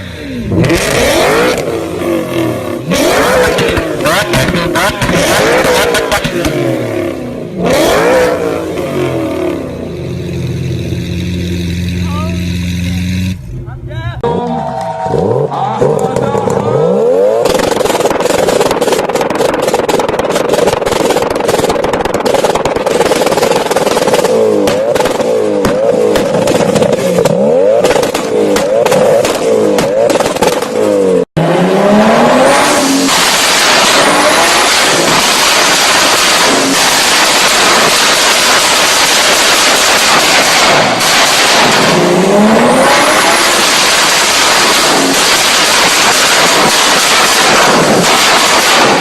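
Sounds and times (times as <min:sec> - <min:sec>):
engine revving: 0:00.0 - 0:49.0
exhaust pops and cracks: 0:03.4 - 0:06.6, 0:17.4 - 0:30.8, 0:33.1 - 0:42.3, 0:43.2 - 0:49.0.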